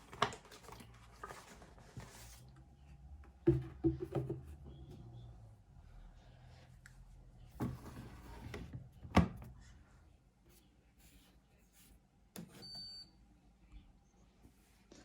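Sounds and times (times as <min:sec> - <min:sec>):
drawer sliding scrape: 0:07.6 - 0:08.8.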